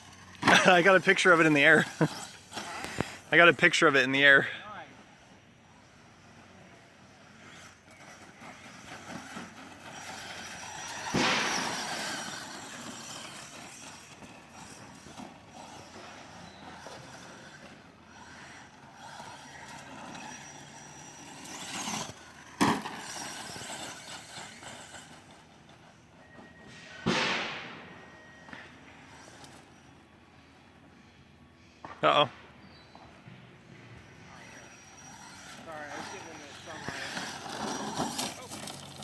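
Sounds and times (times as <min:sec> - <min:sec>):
toy car driving over ground: 0:00.0 - 0:39.0
loud rush: 0:10.1 - 0:13.3.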